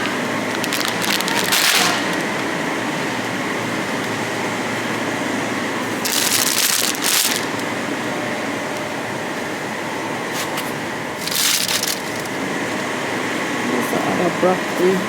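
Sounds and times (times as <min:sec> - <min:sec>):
busy store background noise: 0:00.0 - 0:15.0
rustling: 0:10.3 - 0:12.4.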